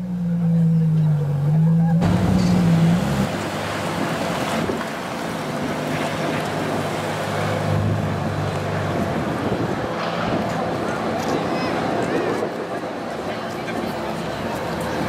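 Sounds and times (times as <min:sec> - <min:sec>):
car engine revving: 0:00.0 - 0:10.6
low engine hum: 0:00.0 - 0:15.0.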